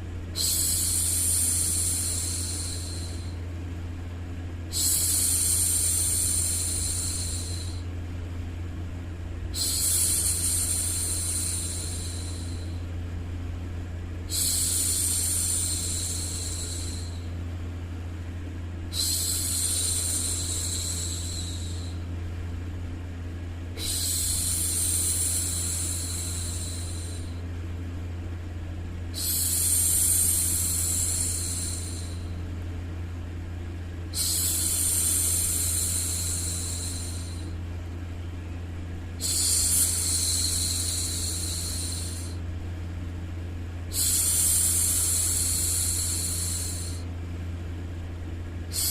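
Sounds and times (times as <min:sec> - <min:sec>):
white noise hum: 0:00.0 - 0:48.9
woman shushing: 0:23.8 - 0:27.3.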